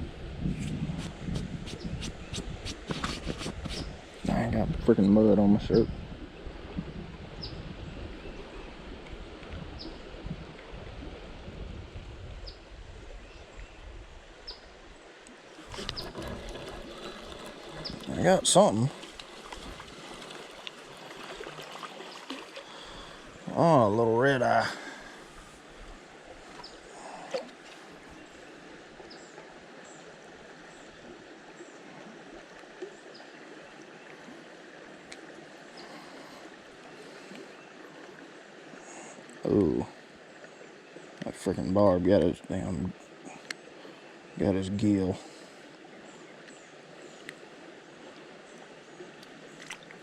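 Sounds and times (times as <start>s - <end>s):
creek water rushing: 0.9s - 50.0s
outdoor background hiss: 16.7s - 31.7s.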